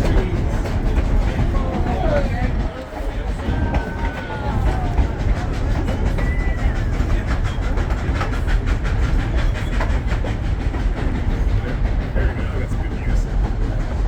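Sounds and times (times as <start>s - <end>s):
train wheels clickety-clack: 0.0s - 14.0s.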